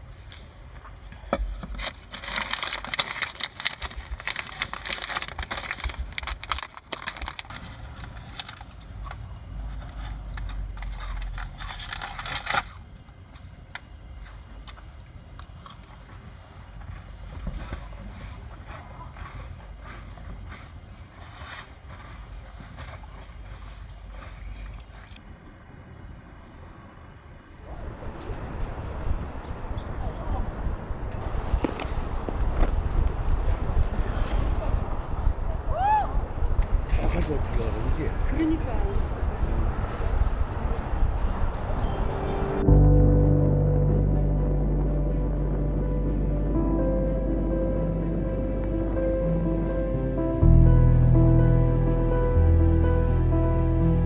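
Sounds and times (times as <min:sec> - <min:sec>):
quiet crackles: 0:00.1 - 0:41.5
low rumble: 0:01.4 - 0:12.5, 0:27.5 - 0:54.0
crinkling and crunching: 0:01.6 - 0:13.4, 0:31.1 - 0:34.7.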